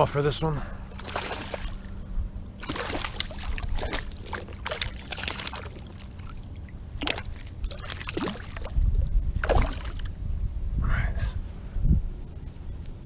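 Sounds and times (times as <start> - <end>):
low steady rumble: 0.0 - 13.0
water splashing against kayak: 1.0 - 1.9, 2.6 - 10.1.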